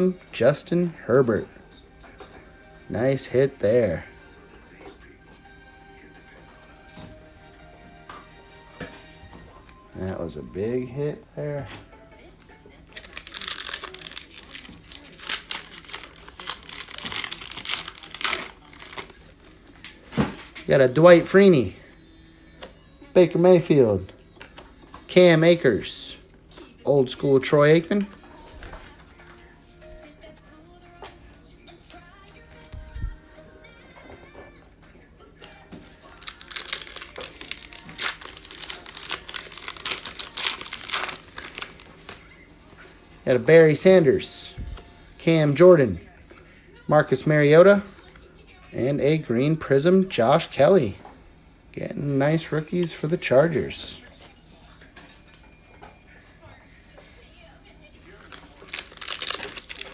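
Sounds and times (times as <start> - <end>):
plastic wrapper crinkling and tearing: 12.9 - 20.7, 35.8 - 42.2, 58.0 - 59.9.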